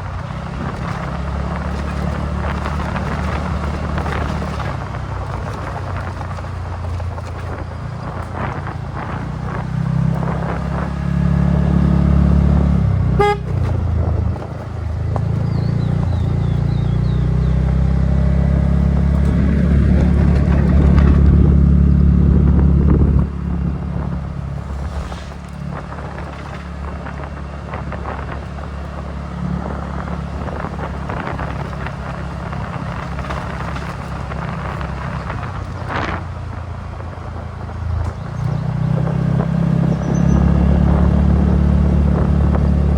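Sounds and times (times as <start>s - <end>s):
scooter engine running: 0.0s - 42.9s
short horn toot: 13.1s - 13.8s.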